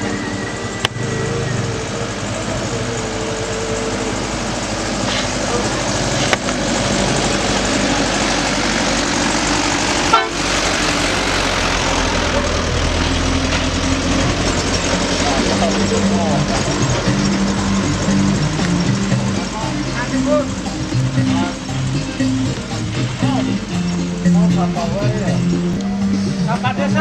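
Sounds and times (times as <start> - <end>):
vehicle engine running hard: 0.0 - 27.0
car horn: 9.9 - 11.8.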